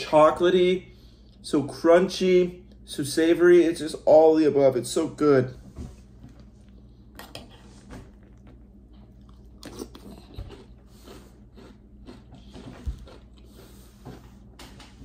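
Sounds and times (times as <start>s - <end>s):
chewing crunchy cereal: 6.6s - 14.5s.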